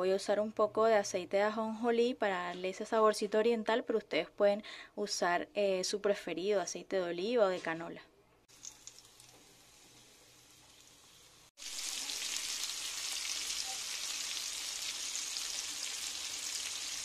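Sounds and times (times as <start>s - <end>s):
oil sizzling in a pan: 8.5s - 17.0s.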